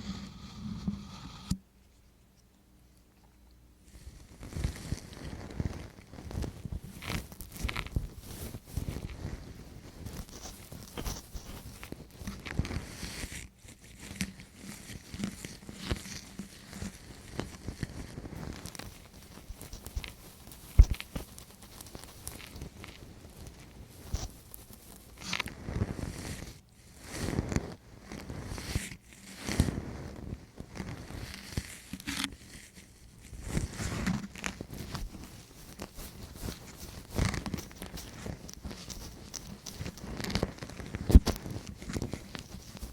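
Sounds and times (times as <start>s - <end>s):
ear-cleaning tool scratching microphone: 0.0s - 1.6s, 14.0s - 42.9s
tool scraping against microphone: 0.0s - 1.6s.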